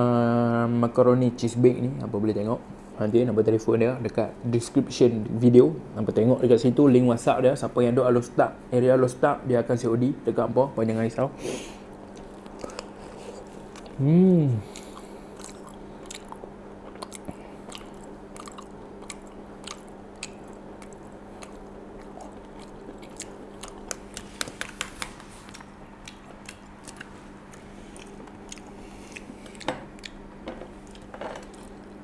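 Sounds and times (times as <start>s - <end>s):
steady low hum: 0.0s - 32.0s
person chewing with wet smacks: 12.0s - 14.0s, 14.6s - 32.0s.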